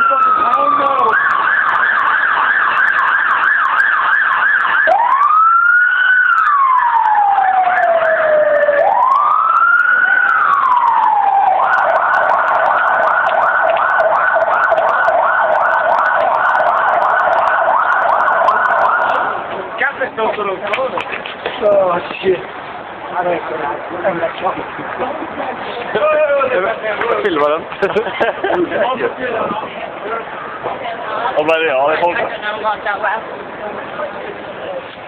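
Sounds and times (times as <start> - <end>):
emergency vehicle siren: 0.0 - 19.6.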